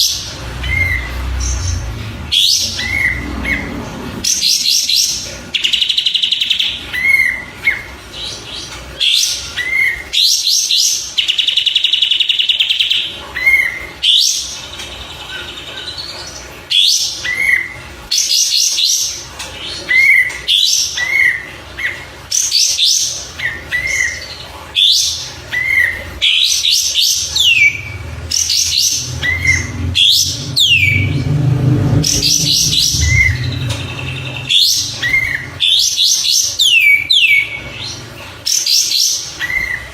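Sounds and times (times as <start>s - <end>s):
songbird chirps and trills: 0.0s - 39.9s
bird whistled sweeps: 31.9s - 35.4s.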